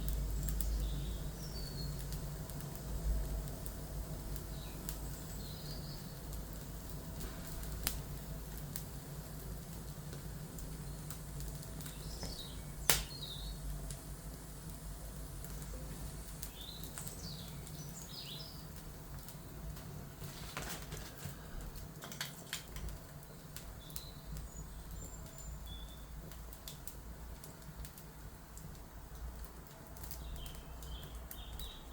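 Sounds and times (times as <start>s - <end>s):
wood fire crackling and popping: 0.0s - 31.9s
birds chirping: 4.5s - 6.2s, 11.8s - 13.7s, 15.8s - 18.8s, 23.2s - 26.2s, 30.2s - 31.9s.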